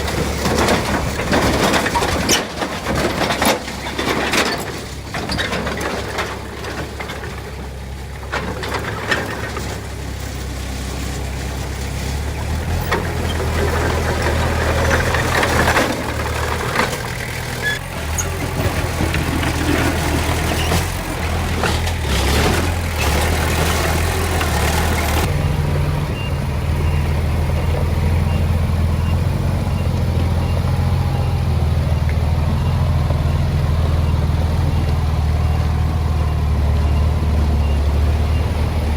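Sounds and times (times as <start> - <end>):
metal clanks and scrapes: 0.0 - 10.4, 12.7 - 25.3
heavy machinery diesel engine: 0.0 - 38.9.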